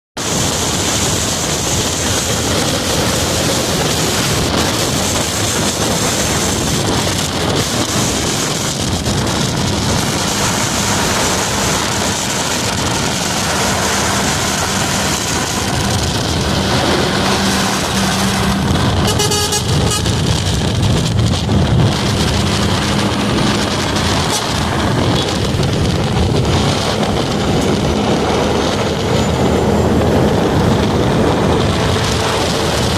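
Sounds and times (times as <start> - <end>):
highway traffic noise: 0.1 - 32.9
horn-like tone: 17.2 - 20.2.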